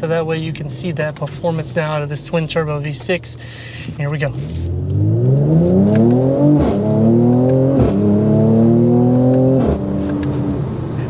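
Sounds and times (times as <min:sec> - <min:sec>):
car engine accelerating hard: 0:04.3 - 0:11.0.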